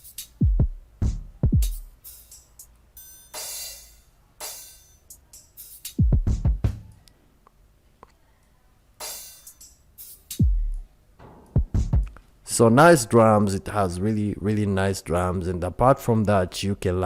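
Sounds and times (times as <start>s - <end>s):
cymbal and hi-hat hits: 0.0s - 7.0s, 9.0s - 12.2s
deep kick drums: 0.4s - 1.9s, 6.0s - 6.8s, 10.4s - 12.2s.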